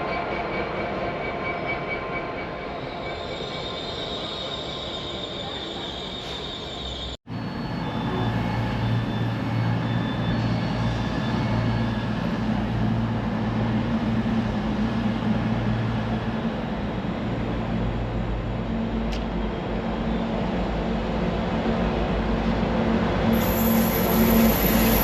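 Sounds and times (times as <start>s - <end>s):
train wheels squealing on rails: 0.0s - 21.1s, 22.4s - 25.0s
train low drone: 6.3s - 25.0s.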